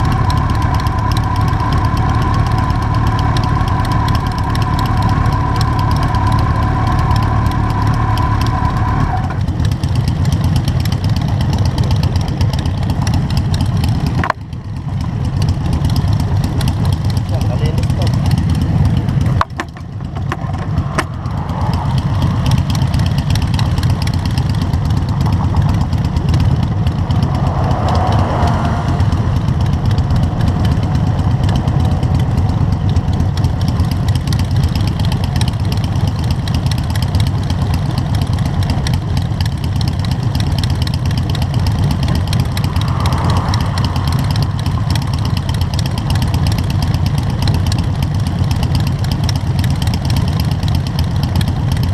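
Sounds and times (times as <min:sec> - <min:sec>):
motorcycle engines idling: 0:00.0 - 0:51.9.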